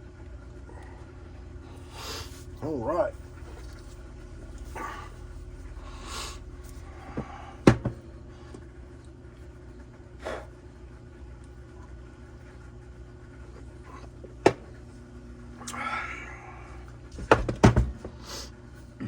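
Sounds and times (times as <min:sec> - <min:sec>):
steady low hum: 0:00.0 - 0:19.0
hard objects knocking: 0:07.2 - 0:08.0.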